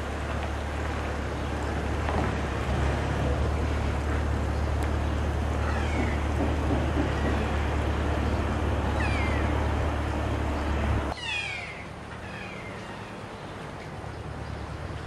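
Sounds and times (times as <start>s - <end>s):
steady low rumble: 0.0s - 11.2s
parrots calling shrilly: 5.6s - 6.4s, 7.0s - 13.2s.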